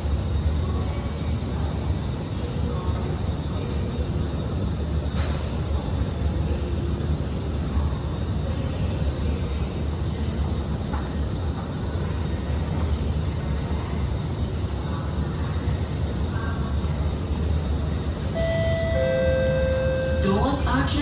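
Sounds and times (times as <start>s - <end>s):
train air-conditioning hum: 0.0s - 21.0s.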